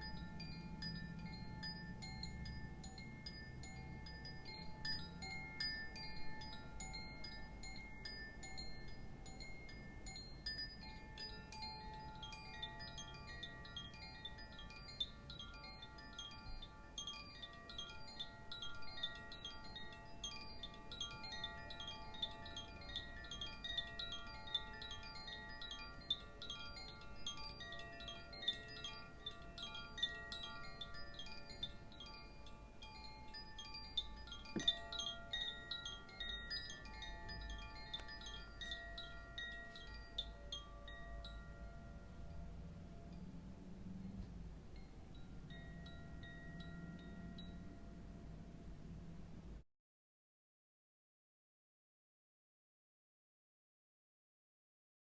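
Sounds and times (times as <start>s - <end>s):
chimes ringing softly: 0.0s - 49.6s.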